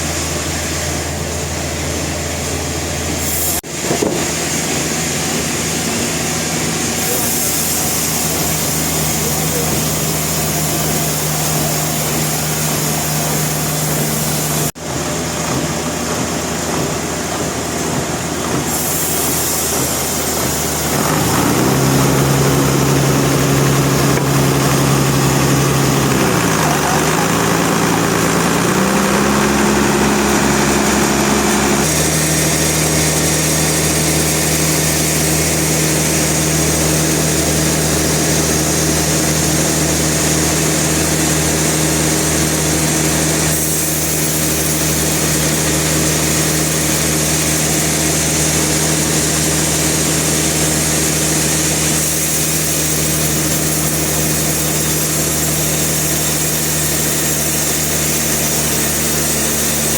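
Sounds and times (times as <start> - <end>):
sawmill machine droning: 0.0 - 59.9.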